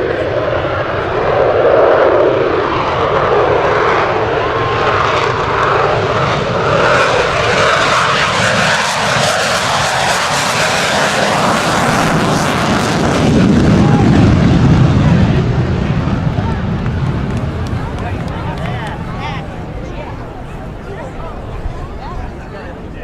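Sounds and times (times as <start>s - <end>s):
aircraft engine running: 0.0s - 23.0s
deep low rumble: 11.0s - 20.8s.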